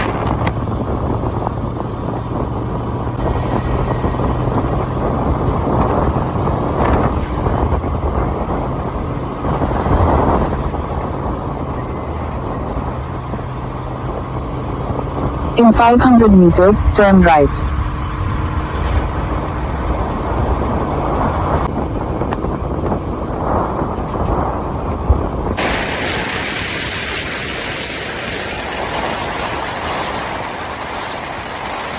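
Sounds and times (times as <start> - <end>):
motorcycle engine hum: 0.0 - 15.6, 16.8 - 26.6
road noise: 0.0 - 31.9
wind noise: 0.0 - 31.9.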